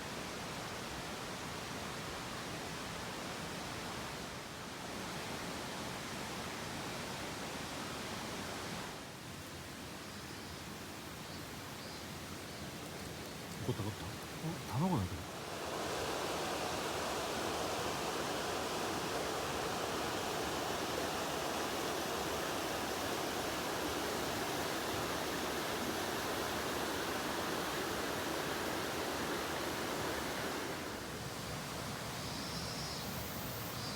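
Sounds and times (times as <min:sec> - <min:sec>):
stream rushing over rocks: 0:13.4 - 0:32.0.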